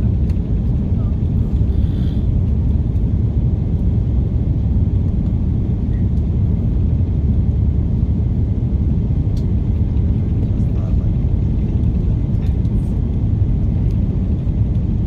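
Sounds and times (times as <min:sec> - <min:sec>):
aircraft cabin engine rumble: 0:00.0 - 0:15.0.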